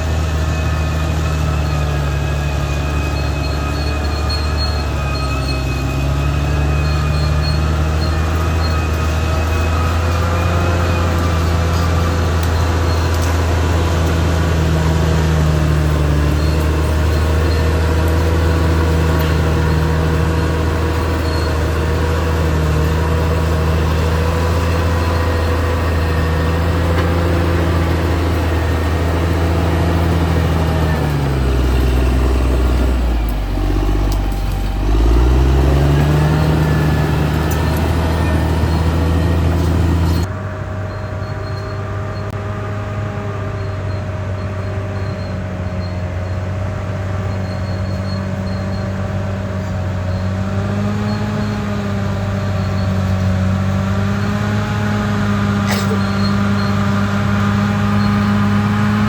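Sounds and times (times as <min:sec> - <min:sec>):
high-pitched whine: 0:00.0 - 0:42.4
bulldozer diesel engine running: 0:00.0 - 0:59.0.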